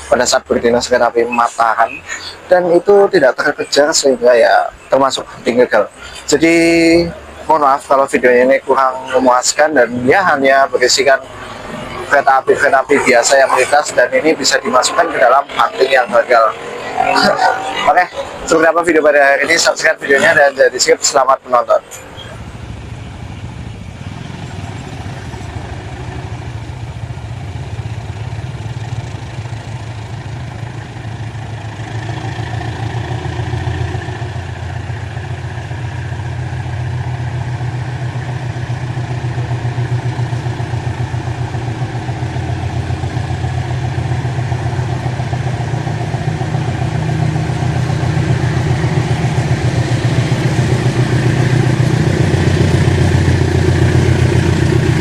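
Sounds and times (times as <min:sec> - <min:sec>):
locomotive engine rumble: 0:00.0 - 0:55.0.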